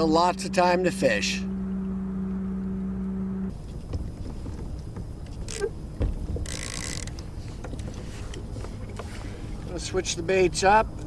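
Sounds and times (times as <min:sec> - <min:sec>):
electric motor humming: 0:00.2 - 0:03.6
short rustles: 0:03.5 - 0:09.7.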